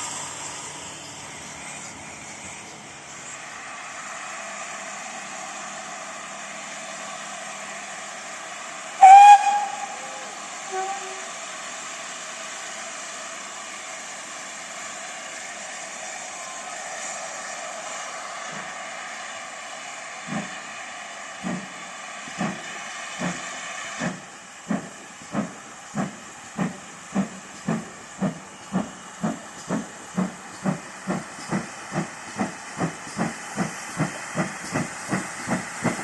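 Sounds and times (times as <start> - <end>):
steady steam hiss: 0.0 - 36.0
steam locomotive whistle: 9.0 - 11.4.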